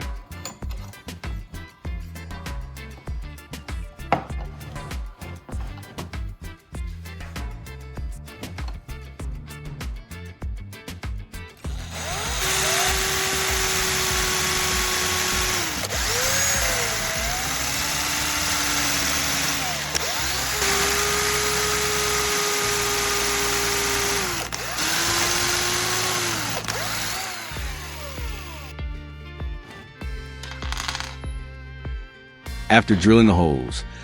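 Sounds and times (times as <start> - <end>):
background music with steady beat: 0.0 - 34.0
electric drill whining: 11.7 - 28.7, 30.4 - 31.2.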